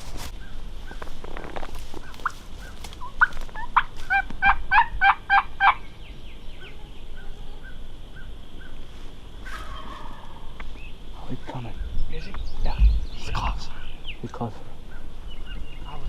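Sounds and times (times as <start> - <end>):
turkey gobbling: 2.0 - 5.8, 9.5 - 10.6.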